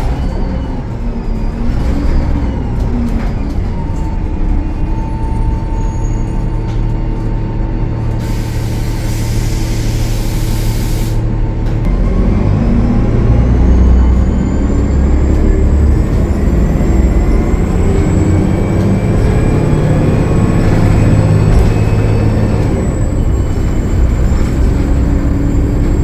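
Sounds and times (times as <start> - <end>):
bus diesel engine under load: 0.0 - 26.0
air hiss: 8.2 - 11.2.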